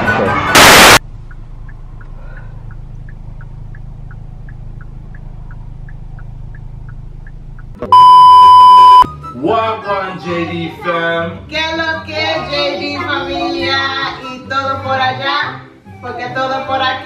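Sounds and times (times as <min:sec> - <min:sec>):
loud electronic beep: 0:00.5 - 0:01.0, 0:07.9 - 0:09.1
faint ticks: 0:01.2 - 0:07.8.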